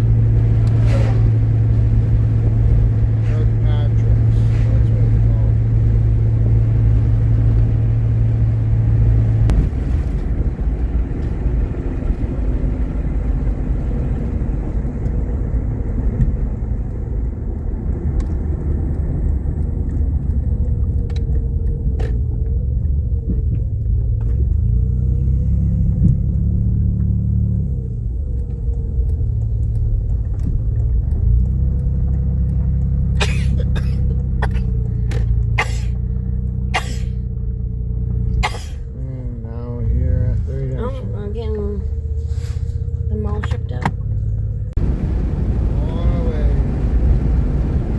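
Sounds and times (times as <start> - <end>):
car engine and road rumble: 0.0 - 47.9.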